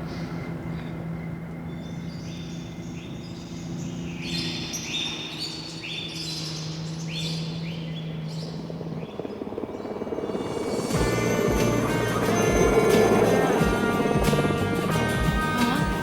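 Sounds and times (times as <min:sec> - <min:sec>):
birds chirping: 0:00.0 - 0:16.0
steady low hum: 0:06.6 - 0:16.0.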